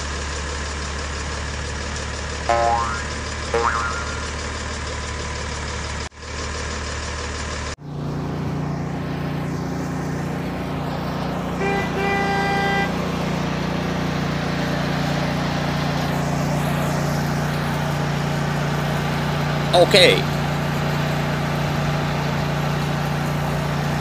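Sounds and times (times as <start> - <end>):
truck engine hum: 0.0 - 24.0
vehicle engine running: 0.0 - 24.0
truck horn honking: 2.5 - 4.4, 11.3 - 15.1.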